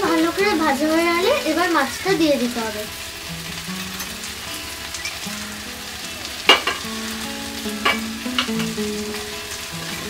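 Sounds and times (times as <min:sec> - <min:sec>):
food sizzling in metal pan: 0:00.0 - 0:10.0
metal spatula knocking pan: 0:06.4 - 0:06.9, 0:07.8 - 0:08.8.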